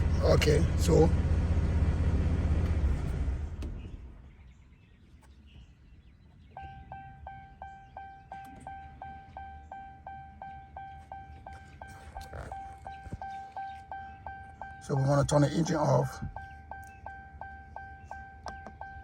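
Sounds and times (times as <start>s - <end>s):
electronic door chime dings: 6.6s - 19.0s.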